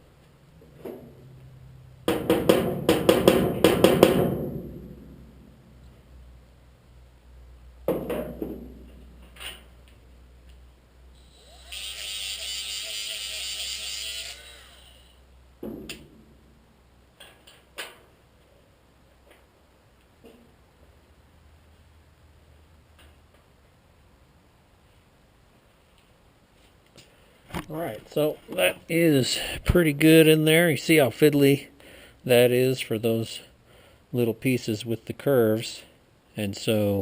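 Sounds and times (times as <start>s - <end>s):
taps and knocks on metal: 2.1s - 4.4s
small grinder running: 11.2s - 15.2s.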